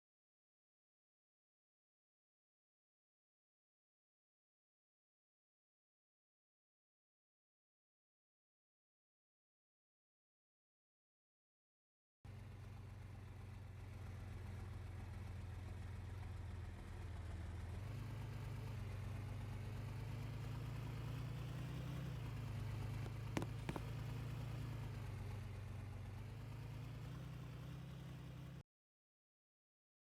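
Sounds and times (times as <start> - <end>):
vehicle engine running: 12.3 - 28.6.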